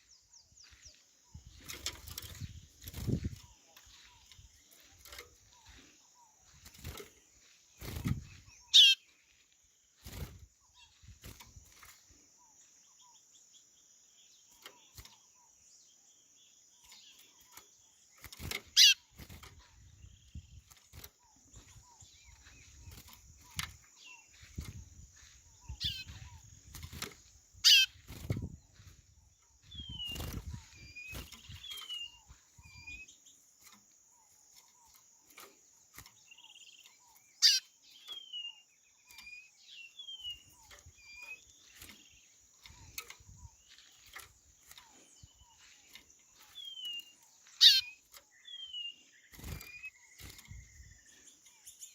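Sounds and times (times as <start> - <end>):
high insect hum: 0.0 - 51.9
bird whistling calls: 8.6 - 9.1, 18.7 - 19.1, 25.6 - 26.5, 27.6 - 28.0, 37.4 - 38.7, 46.6 - 48.9.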